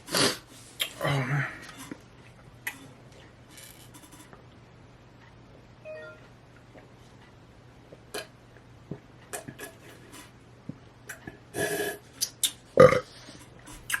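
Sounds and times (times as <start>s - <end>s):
person eating with clicks: 12.2s - 12.6s, 13.6s - 14.0s.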